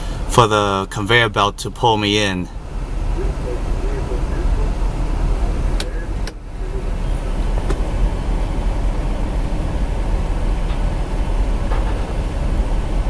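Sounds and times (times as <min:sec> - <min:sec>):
low rumble in car cabin: 0:00.0 - 0:13.0.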